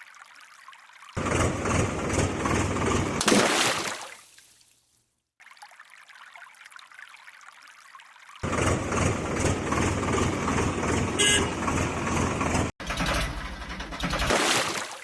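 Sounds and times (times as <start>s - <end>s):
water pouring and splashing: 0.0s - 8.5s, 14.2s - 15.0s.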